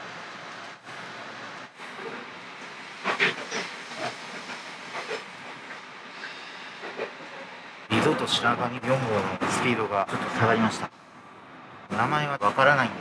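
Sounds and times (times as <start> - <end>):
railcar hissing rumble: 0.0 - 11.9
train clatters: 1.8 - 10.9.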